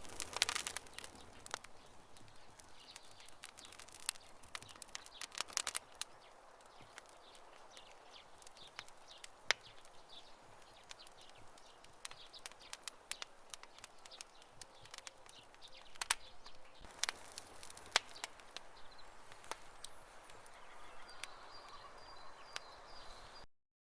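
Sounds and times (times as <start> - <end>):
campfire crackling and popping: 0.0 - 23.4
fire burning hiss: 0.0 - 23.4.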